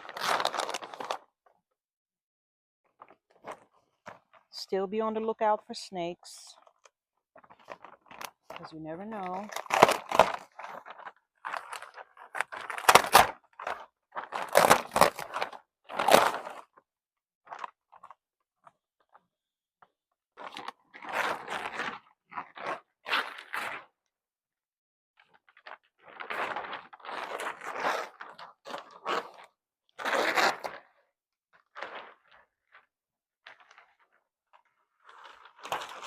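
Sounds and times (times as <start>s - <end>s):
plastic sheeting crinkling: 0.0s - 1.3s, 7.4s - 16.8s, 25.2s - 30.8s, 31.6s - 36.0s.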